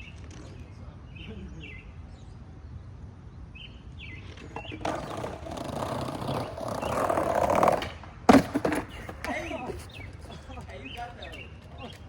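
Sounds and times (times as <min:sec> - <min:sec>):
skateboard wheels rolling on pavement: 0:03.2 - 0:12.0
skateboard clack: 0:04.3 - 0:12.0.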